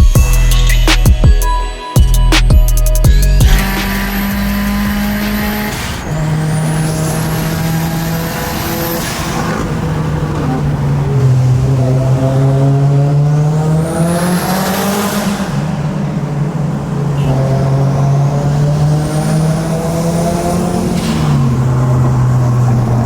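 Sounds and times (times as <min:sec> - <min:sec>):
high whine: 0:00.0 - 0:09.5
car engine running: 0:00.0 - 0:23.0.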